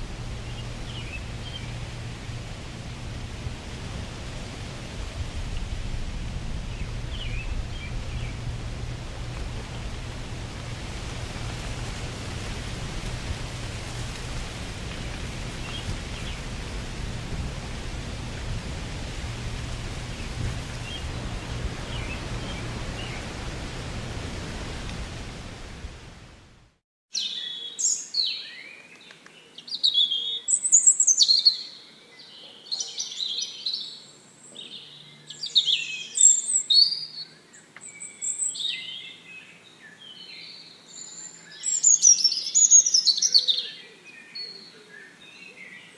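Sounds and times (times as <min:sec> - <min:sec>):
wind through leaves: 0:00.0 - 0:45.9
birds chirping and singing: 0:06.7 - 0:10.8, 0:13.9 - 0:17.3.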